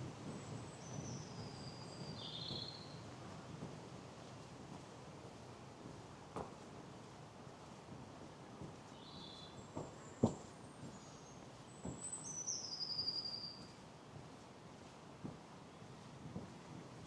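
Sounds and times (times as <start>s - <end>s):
songbirds singing: 0.4s - 3.0s
soft footsteps on path: 3.5s - 11.1s, 14.2s - 17.0s.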